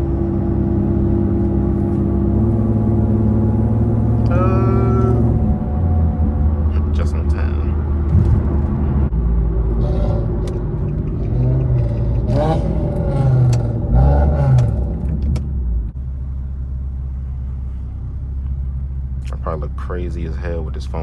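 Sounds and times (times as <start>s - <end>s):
car exhaust engine note: 1.4s - 9.2s.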